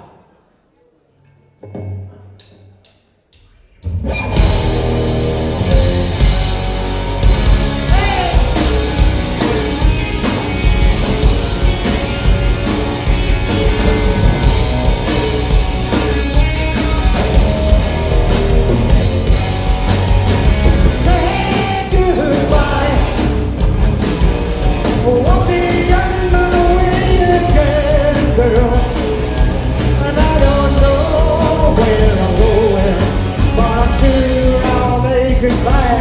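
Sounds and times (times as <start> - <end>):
steady drum beat: 2.8 - 36.0
bass guitar: 3.8 - 36.0
electric guitars: 3.9 - 36.0
person singing lead vocal: 7.8 - 10.4, 21.0 - 23.6, 24.9 - 36.0.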